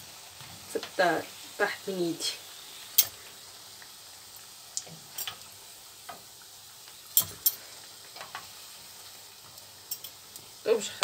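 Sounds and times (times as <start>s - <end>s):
dough frying in hot oil: 0.0s - 11.0s
metal utensil clicking on pan: 3.0s - 3.2s, 4.8s - 5.5s, 7.1s - 8.5s, 9.6s - 11.0s.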